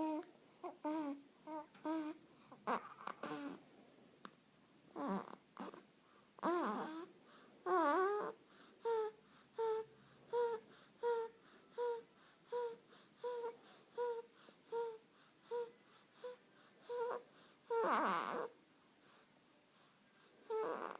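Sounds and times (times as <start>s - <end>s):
baby whimpering: 0.0s - 3.6s, 4.9s - 18.6s, 20.4s - 20.9s
baby squeaky grunts: 16.9s - 18.5s.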